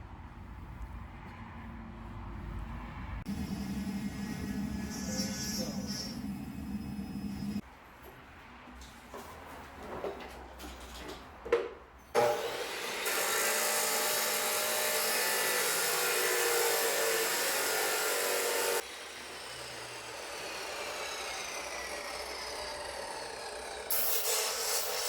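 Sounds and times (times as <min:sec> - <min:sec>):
power tool cutting: 0:03.3 - 0:07.6, 0:12.2 - 0:25.0.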